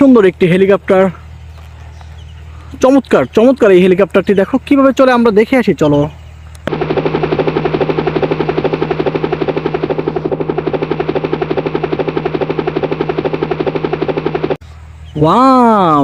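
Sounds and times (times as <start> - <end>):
toy helicopter rotor chopping: 6.7 - 14.6.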